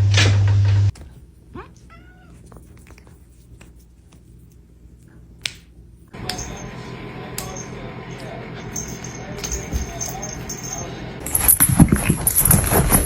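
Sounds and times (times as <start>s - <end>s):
cat yowling: 1.6s - 2.4s.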